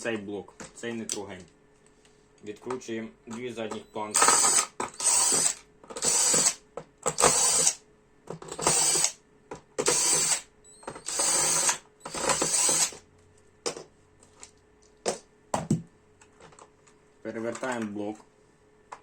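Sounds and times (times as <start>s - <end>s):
ratcheting screwdriver strokes: 4.1s - 7.8s, 8.5s - 9.2s, 9.8s - 13.0s.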